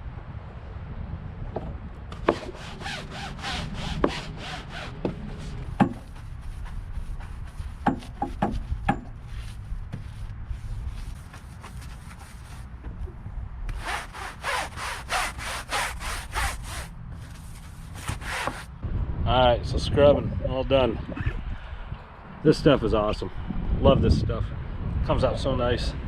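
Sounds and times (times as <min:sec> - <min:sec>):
stiff brush scrubbing: 0:02.2 - 0:12.8, 0:13.7 - 0:18.7
sharp knocks: 0:05.8 - 0:06.1, 0:07.8 - 0:09.2.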